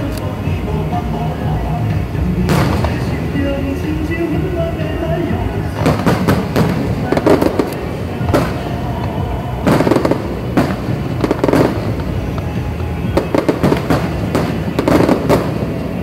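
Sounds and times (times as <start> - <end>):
background music: 0.0 - 16.0
fireworks bangs and crackles: 0.0 - 16.0.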